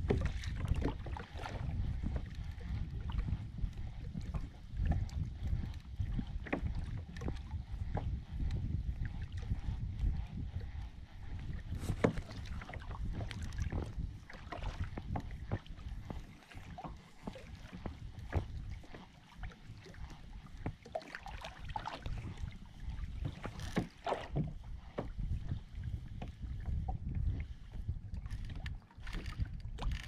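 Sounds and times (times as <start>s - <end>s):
wind rumble on microphone: 0.0s - 30.0s
water splashes: 20.7s - 24.5s.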